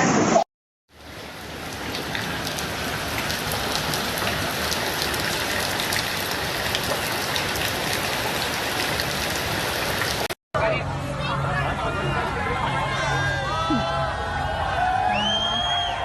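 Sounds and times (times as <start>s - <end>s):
rain spattering on hard surface: 0.9s - 10.4s.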